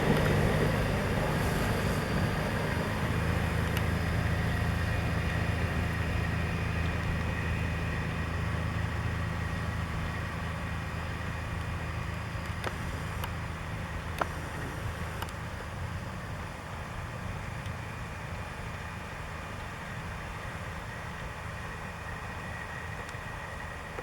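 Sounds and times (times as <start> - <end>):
diesel truck engine droning: 0.0 - 24.0.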